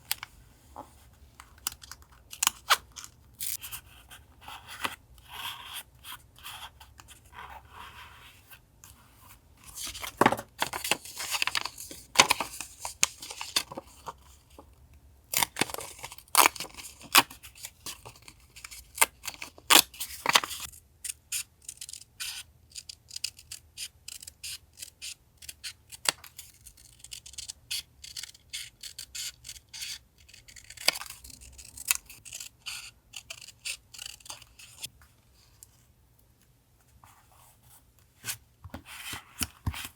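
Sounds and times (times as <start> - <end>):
scissors snipping paper: 15.4 - 34.9.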